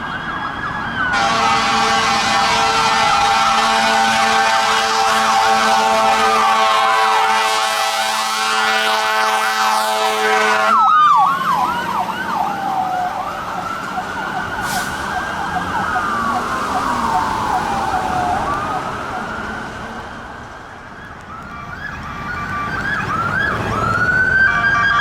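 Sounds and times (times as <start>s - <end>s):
electronic sirens yelping and wailing: 0.0s - 25.0s
fire engine air horn blaring: 1.1s - 12.0s, 14.2s - 19.4s.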